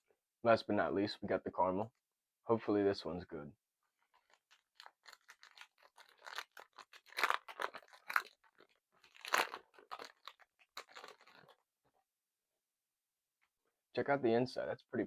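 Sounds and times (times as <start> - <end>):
wrapper crinkling: 4.0 - 11.6
wrapper tearing: 4.1 - 11.6.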